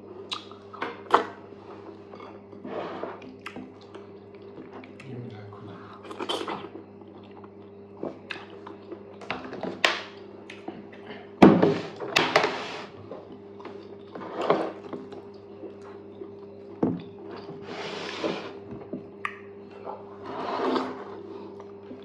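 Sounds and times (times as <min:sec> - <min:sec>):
low electrical hum: 0:00.0 - 0:22.0
eating noises: 0:03.2 - 0:09.3.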